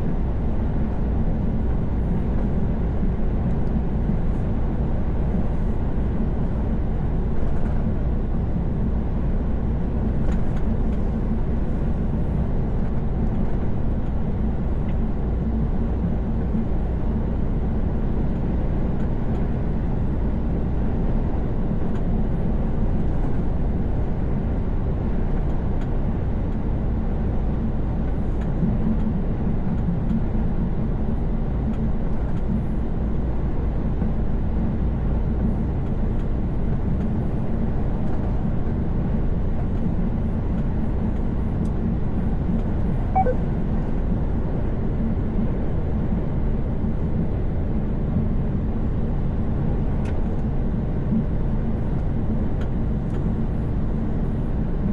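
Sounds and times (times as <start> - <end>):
truck engine drone: 34.9 - 46.5
short tone: 43.0 - 43.5.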